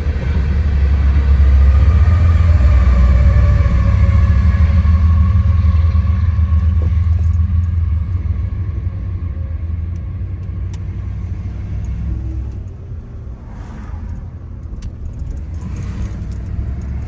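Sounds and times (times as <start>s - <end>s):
freight train rumbling past: 0.0s - 11.6s.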